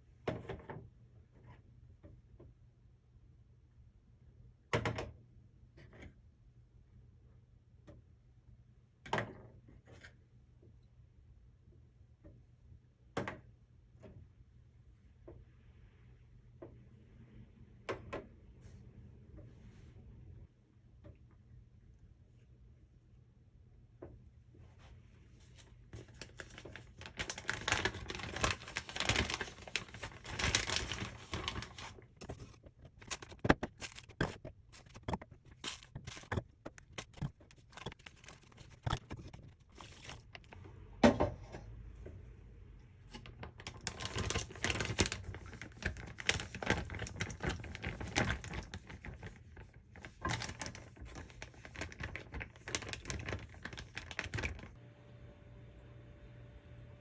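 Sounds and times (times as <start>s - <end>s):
plastic bag crinkling: 26.0s - 40.6s, 43.4s - 54.8s.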